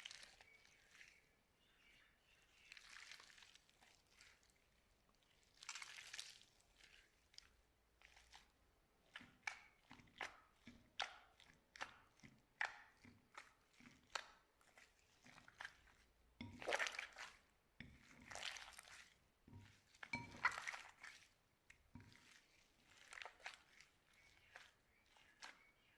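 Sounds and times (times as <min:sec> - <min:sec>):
slime squishing by hand: 0:02.8 - 0:25.9.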